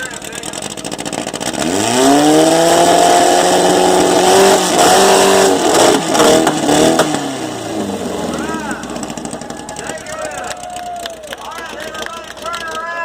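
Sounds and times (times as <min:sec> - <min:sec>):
car engine revving hard: 0:00.4 - 0:09.5.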